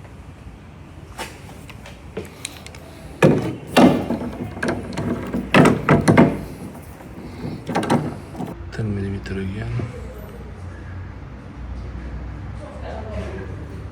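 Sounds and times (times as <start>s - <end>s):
metal hand tools clanking: 2.9s - 8.6s.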